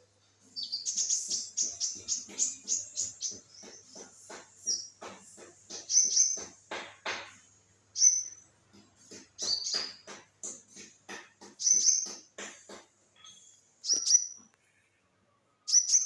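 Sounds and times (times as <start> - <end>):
bird singing high chirps: 0.6 - 4.0, 5.7 - 6.5, 8.0 - 8.4, 9.4 - 10.1, 11.6 - 12.2, 13.2 - 14.4, 15.7 - 16.0.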